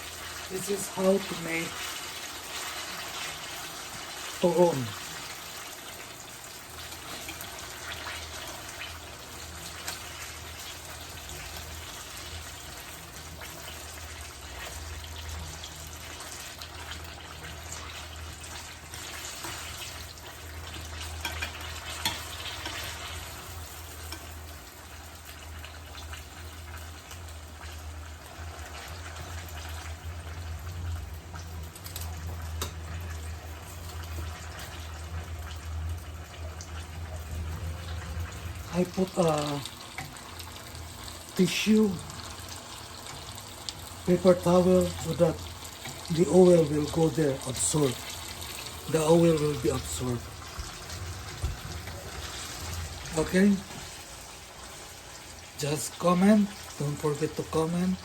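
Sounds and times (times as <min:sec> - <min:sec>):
food frying in hot oil: 0:00.0 - 0:58.0
low steady hum: 0:27.8 - 0:58.0.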